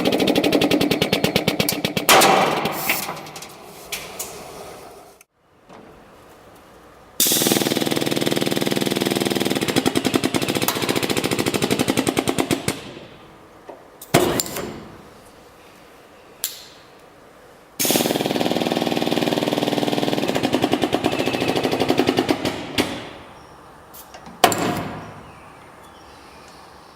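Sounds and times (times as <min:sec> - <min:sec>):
rivet gun rapid pulsing: 0:07.2 - 0:12.9, 0:17.8 - 0:22.6.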